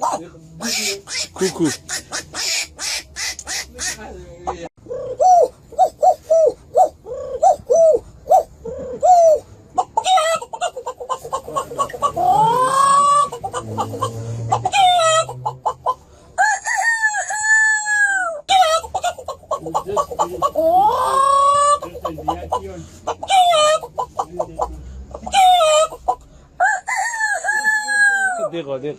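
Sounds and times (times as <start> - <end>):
rooster-like bird crowing and clucking: 11.9 - 19.0, 25.2 - 28.5.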